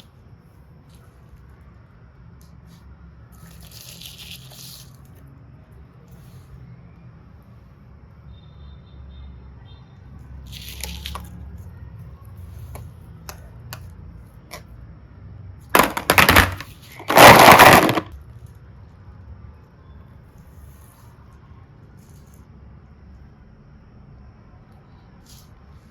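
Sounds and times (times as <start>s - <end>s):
loud crackling crunches: 15.8s - 18.1s.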